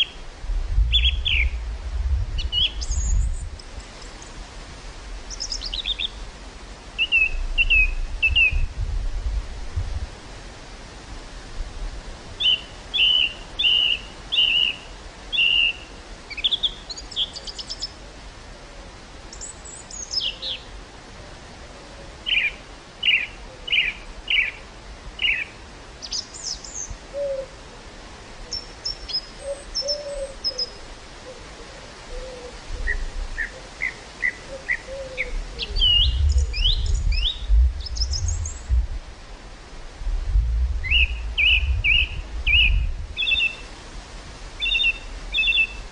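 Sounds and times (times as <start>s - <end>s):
wind rumble on microphone: 0.0s - 13.6s, 31.9s - 33.6s, 34.9s - 45.9s
songbirds chirping and trilling: 0.9s - 1.7s, 2.4s - 4.4s, 5.2s - 6.4s, 12.4s - 18.0s, 19.3s - 20.8s, 21.8s - 27.5s, 28.4s - 38.8s, 40.8s - 43.8s, 44.6s - 45.9s
faint lower-pitched bird call: 28.5s - 31.4s.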